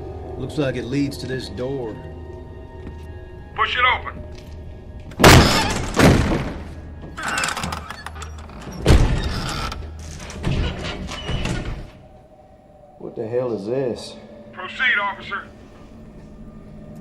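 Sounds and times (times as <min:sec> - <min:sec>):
heavy door thudding: 0:05.1 - 0:12.0
steady low drone: 0:12.0 - 0:17.0.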